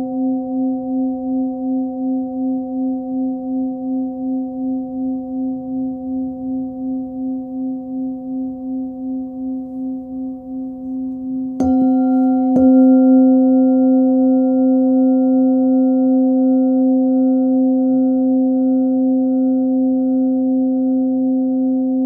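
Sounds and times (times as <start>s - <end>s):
singing bowl ringing: 6.4s - 22.0s
singing bowl struck: 10.8s - 16.0s.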